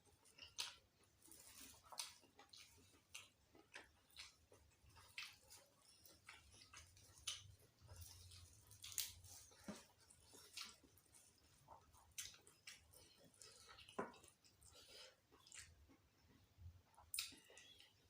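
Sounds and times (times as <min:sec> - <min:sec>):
chewing with wet lip-smacks: 0:00.0 - 0:18.0.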